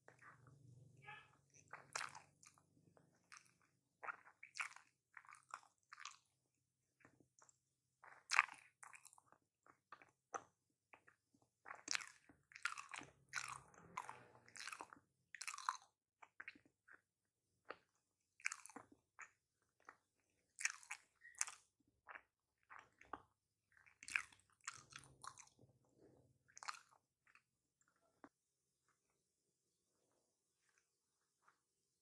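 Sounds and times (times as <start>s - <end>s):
chewing and biting: 1.6s - 6.3s, 7.0s - 25.8s, 26.5s - 27.5s.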